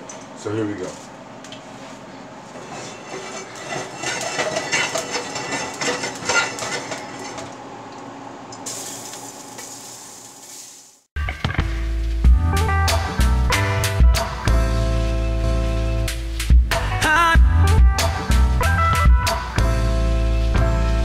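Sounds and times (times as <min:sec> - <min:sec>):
fat sizzling in a frying pan: 0:08.6 - 0:11.1.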